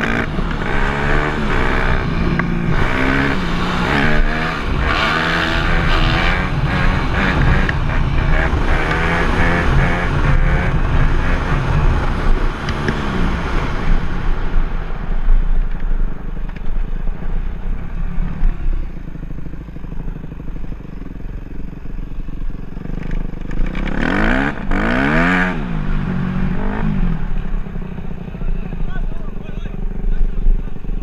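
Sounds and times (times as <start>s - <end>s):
dirt bike engine revving: 0.0s - 14.6s, 22.8s - 28.8s.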